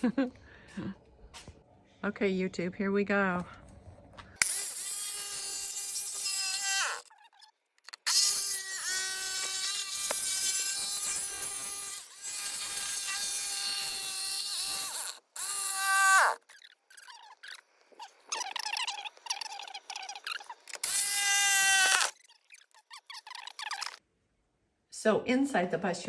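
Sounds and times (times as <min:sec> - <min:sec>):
power tool motor whine cutting: 0:04.4 - 0:07.1, 0:08.0 - 0:16.5, 0:20.5 - 0:22.2.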